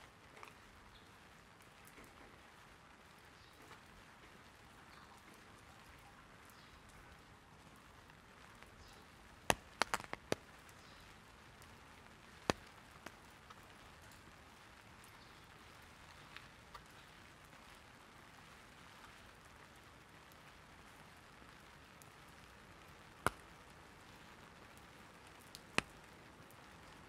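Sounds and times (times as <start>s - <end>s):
rain on an umbrella: 0.0s - 27.0s
sharp taps on umbrella canopy: 9.5s - 11.0s, 12.3s - 14.3s, 23.2s - 23.6s.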